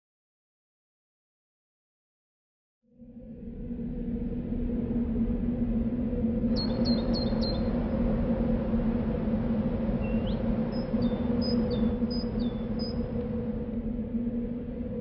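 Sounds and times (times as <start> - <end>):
low hum: 3.0 - 15.0
songbird chirping and whistling: 6.6 - 7.7, 10.0 - 13.1.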